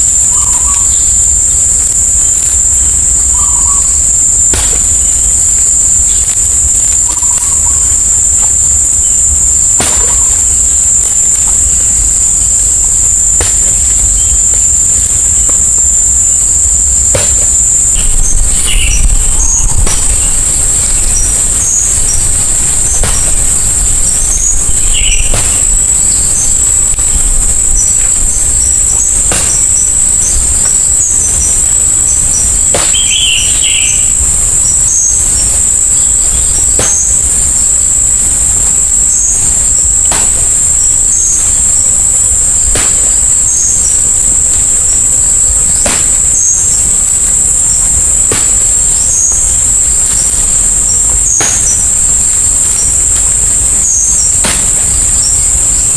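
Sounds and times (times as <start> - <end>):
insects shrilling: 0.0 - 55.9
bird chirping: 17.8 - 37.2.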